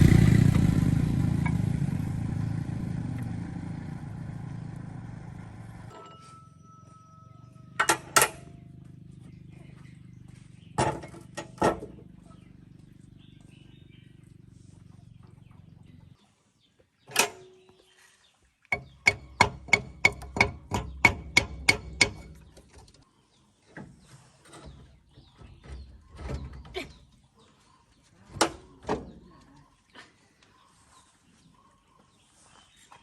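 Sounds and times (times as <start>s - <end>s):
low hum: 0.0s - 10.6s
hammer striking metal: 7.7s - 8.5s, 18.7s - 22.4s.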